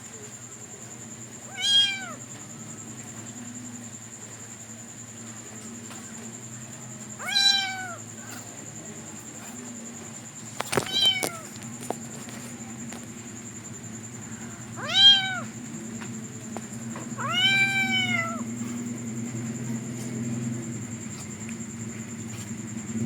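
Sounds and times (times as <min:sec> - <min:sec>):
kitten meowing: 0:01.5 - 0:02.2, 0:07.2 - 0:08.0, 0:10.8 - 0:11.4, 0:14.8 - 0:15.5, 0:17.2 - 0:18.4
steady low hum: 0:07.9 - 0:23.0.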